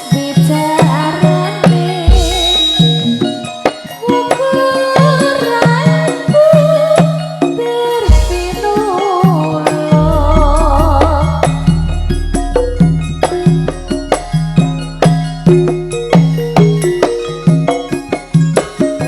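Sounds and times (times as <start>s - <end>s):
drum strokes: 0.0s - 4.5s, 8.0s - 19.0s
wavering melody line: 8.0s - 19.0s
struck metallic tones: 8.1s - 19.0s
deep ringing low note: 10.1s - 16.8s.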